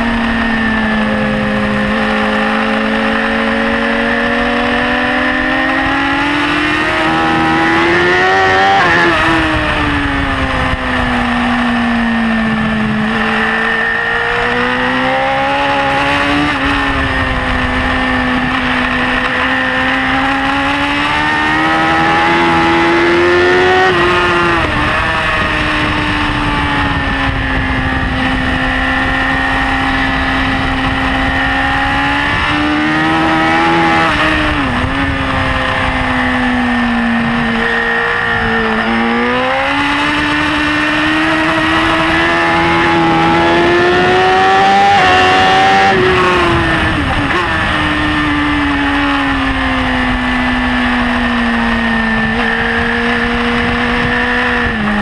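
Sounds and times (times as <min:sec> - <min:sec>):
motorcycle engine at racing speed: 0:00.0 - 0:55.0
wind rushing past: 0:00.0 - 0:55.0.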